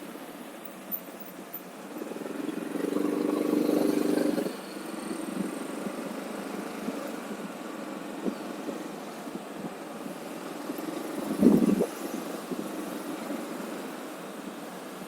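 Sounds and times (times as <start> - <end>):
wind noise: 11.2 - 12.8.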